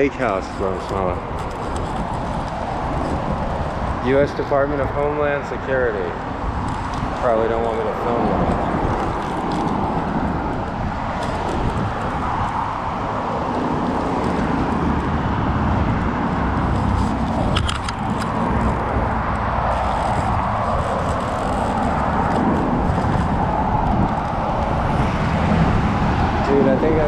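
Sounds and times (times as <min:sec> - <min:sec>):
road traffic rumbling: 0:00.0 - 0:27.0.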